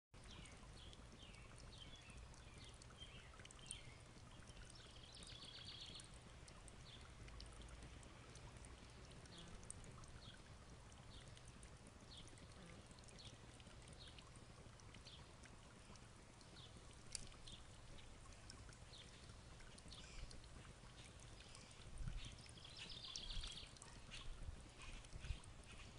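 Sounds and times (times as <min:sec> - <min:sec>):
bird chirping: 0:21.4 - 0:25.9.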